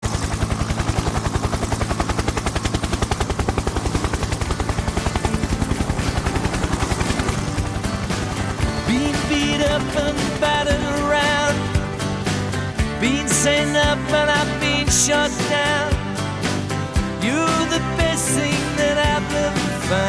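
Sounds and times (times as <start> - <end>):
helicopter rotor chopping: 0.0 - 20.0.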